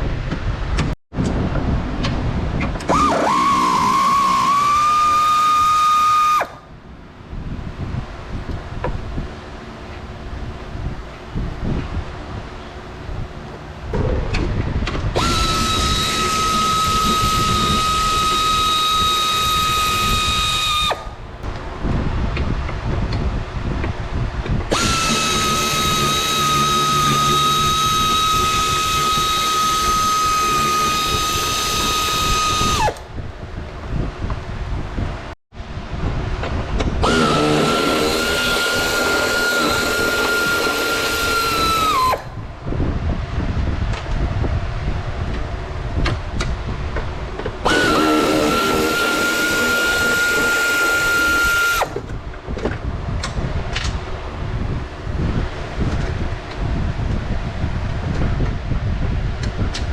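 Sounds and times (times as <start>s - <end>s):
power drill whining: 2.8s - 6.6s, 15.2s - 21.1s, 24.7s - 33.1s, 37.0s - 42.3s, 47.6s - 52.1s.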